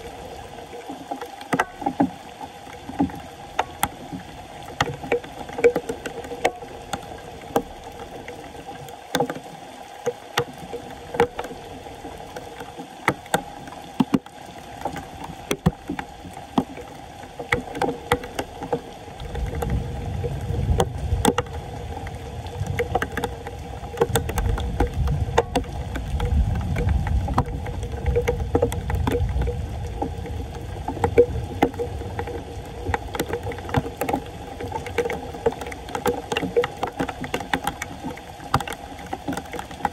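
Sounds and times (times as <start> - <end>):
floodwater sloshing and splashing: 0.0 - 39.9
small knocks and clicks: 0.7 - 39.9.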